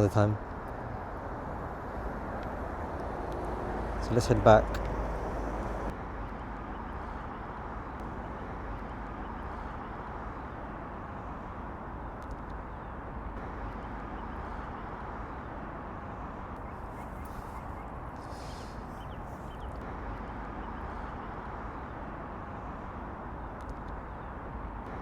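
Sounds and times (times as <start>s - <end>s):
distant road traffic rumble: 0.0s - 25.0s.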